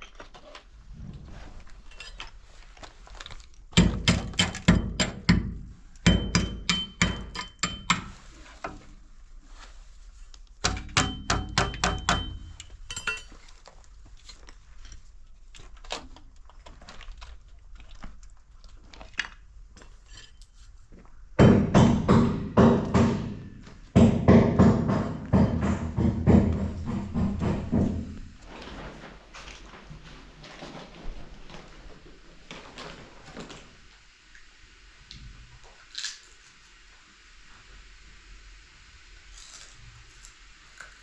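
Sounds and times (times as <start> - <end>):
hammer blows: 10.6 - 12.6, 21.4 - 28.3.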